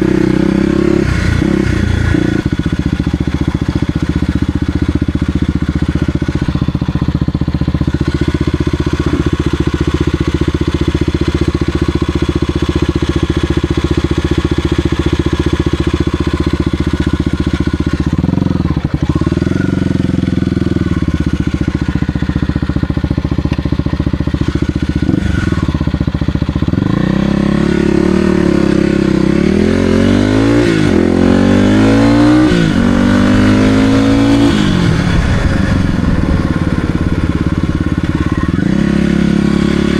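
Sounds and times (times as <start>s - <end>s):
dirt bike engine revving: 26.7s - 39.9s.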